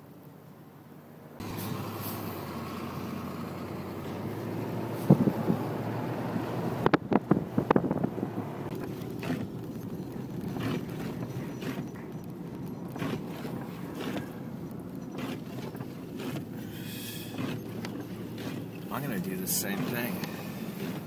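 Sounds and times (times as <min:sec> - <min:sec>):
wind rumbling on microphone: 0:04.5 - 0:16.7.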